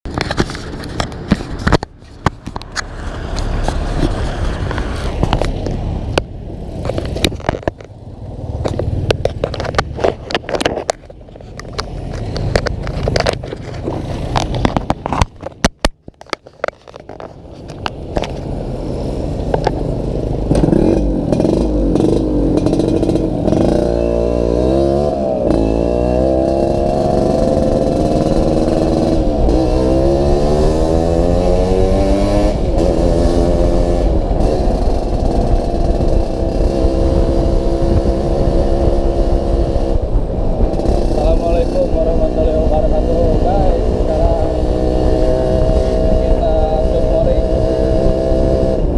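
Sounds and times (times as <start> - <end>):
motorcycle engine revving: 2.3 - 15.7, 18.1 - 48.9
exhaust rattling metallically: 19.0 - 48.9.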